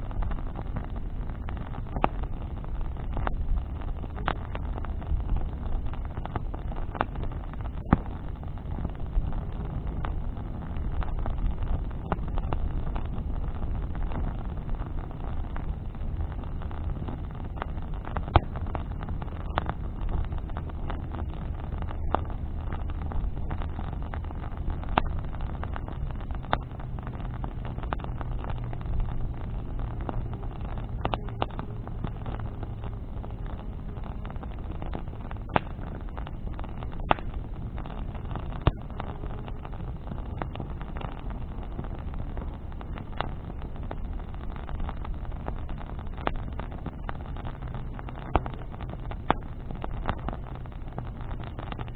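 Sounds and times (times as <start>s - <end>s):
bonfire crackling and popping: 0.0s - 51.9s
low fire rumble: 0.0s - 51.9s
faint engine hum: 0.1s - 36.5s.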